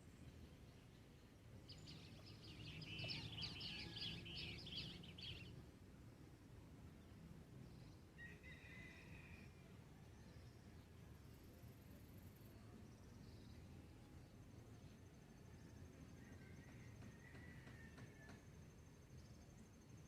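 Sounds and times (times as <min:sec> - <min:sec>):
faint low outdoor rumble: 0:00.0 - 0:20.0
songbird twittering: 0:01.7 - 0:05.6.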